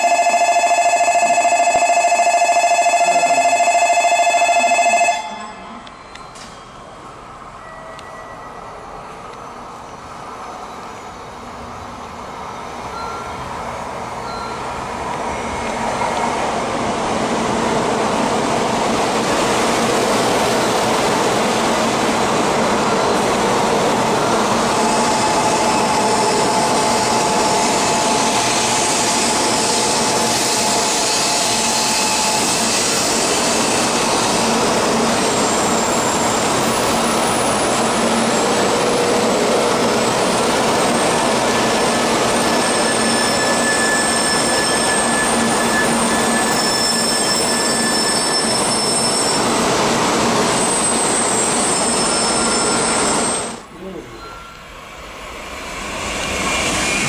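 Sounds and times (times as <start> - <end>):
train wheel and air rush: 5.8 - 57.0.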